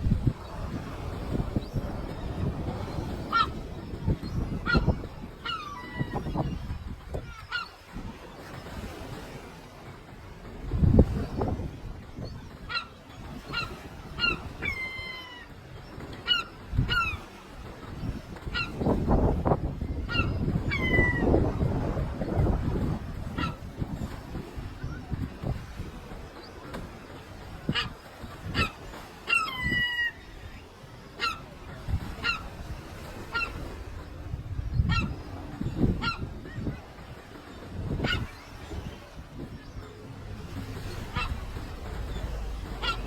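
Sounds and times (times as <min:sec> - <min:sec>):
seagull calling: 0:01.6 - 0:08.5, 0:12.2 - 0:17.6, 0:18.2 - 0:22.3, 0:23.3 - 0:24.1, 0:27.5 - 0:43.0.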